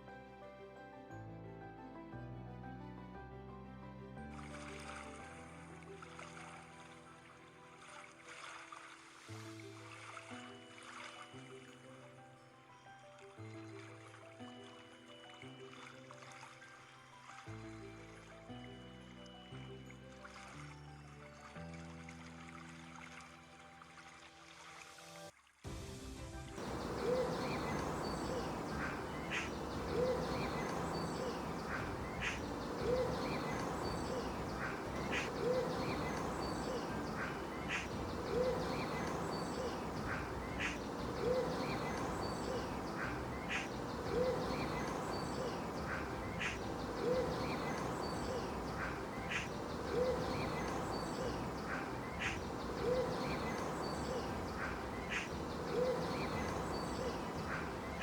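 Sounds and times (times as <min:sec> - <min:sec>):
bird hooting call: 0:26.6 - 0:58.0
faint high bird chirps: 0:26.6 - 0:58.0
steady hiss: 0:26.6 - 0:58.0.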